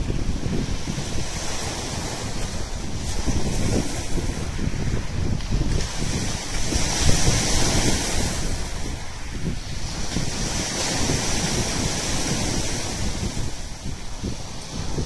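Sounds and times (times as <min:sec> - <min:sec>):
surf washing onto shore: 0:00.0 - 0:15.0
wind buffeting microphone: 0:00.0 - 0:15.0.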